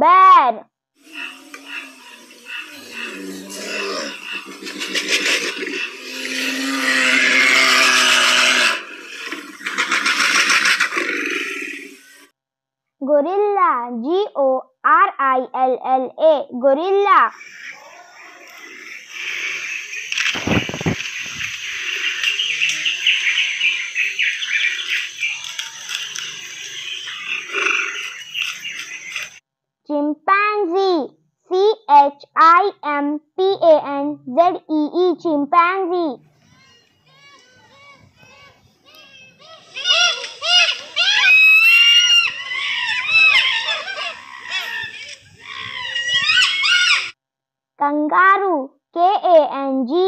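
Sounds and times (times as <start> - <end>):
bear growling: 1.0 - 12.0
birds chirping in a chorus: 1.0 - 12.2, 17.3 - 29.4, 36.4 - 47.2.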